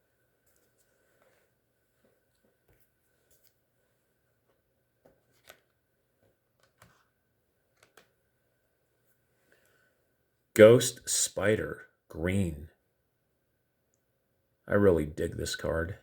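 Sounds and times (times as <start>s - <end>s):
trading cards clicking and rustling: 5.0s - 5.8s, 7.7s - 8.2s.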